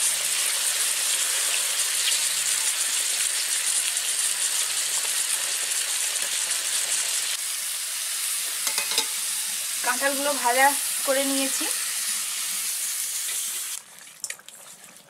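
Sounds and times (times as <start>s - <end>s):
oil sizzling and bubbling: 0.0s - 15.0s
water poured into a pan: 13.0s - 15.0s.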